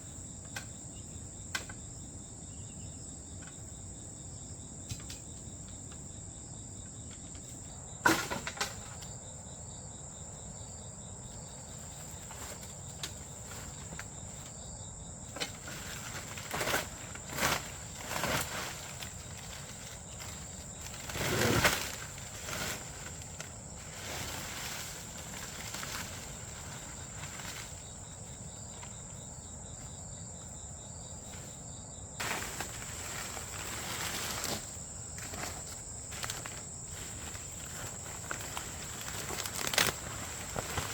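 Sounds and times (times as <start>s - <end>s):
insects trilling: 0.0s - 40.9s
rustling and knocking: 32.2s - 40.9s.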